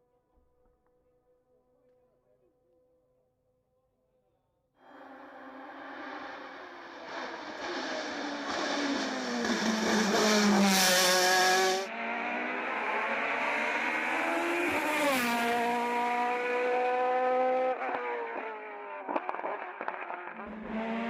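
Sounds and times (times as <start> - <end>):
race car engine at full throttle: 4.8 - 21.0.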